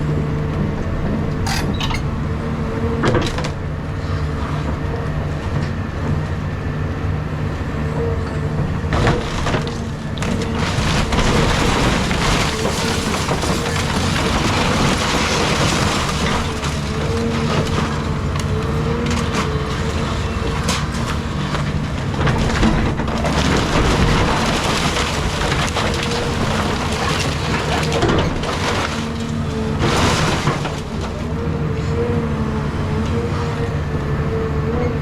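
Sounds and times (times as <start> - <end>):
excavator engine and hydraulics: 0.0 - 35.0
wood crunching and splintering: 8.9 - 31.5.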